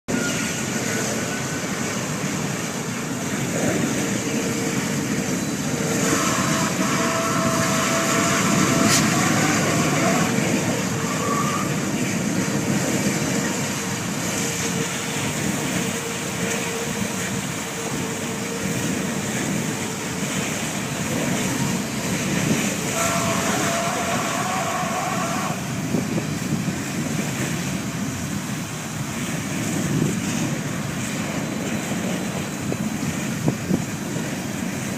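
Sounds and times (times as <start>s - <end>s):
road and traffic noise: 0.1s - 34.9s
horn blasts: 6.0s - 11.7s, 22.4s - 25.6s.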